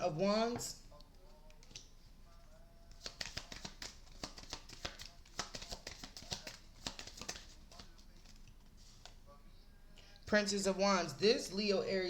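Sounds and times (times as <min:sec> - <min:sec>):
cards being shuffled: 0:02.9 - 0:09.2.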